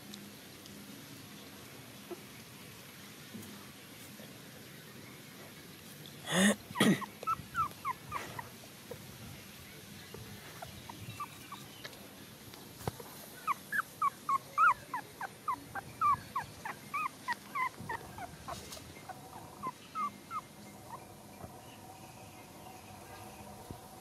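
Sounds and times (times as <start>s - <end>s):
puppies whimpering: 6.8s - 8.6s, 13.4s - 21.6s.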